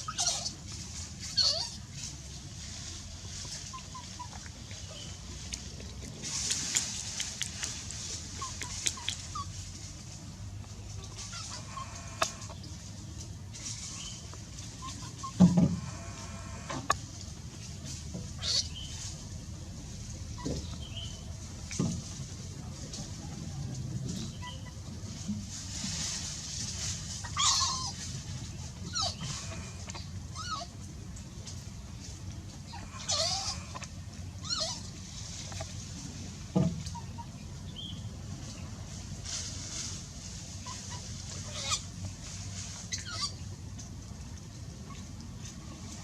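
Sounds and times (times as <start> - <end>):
young animal whimpering: 0.0 - 0.6, 1.3 - 1.8, 8.3 - 9.6, 27.2 - 28.0, 28.9 - 30.8, 32.7 - 35.6, 40.6 - 41.9, 42.8 - 43.4
low hum and hiss: 0.0 - 46.0
animal chirping calls: 32.7 - 33.8, 42.9 - 43.4.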